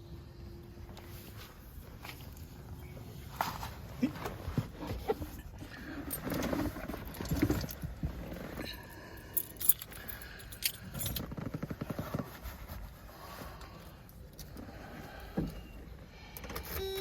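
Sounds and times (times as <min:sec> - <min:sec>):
keys jangling: 0:09.3 - 0:11.2
rustling: 0:09.6 - 0:14.1.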